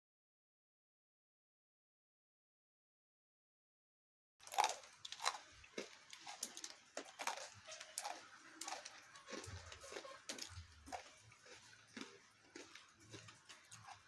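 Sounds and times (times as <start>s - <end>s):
chewing and crunching: 4.4s - 14.0s.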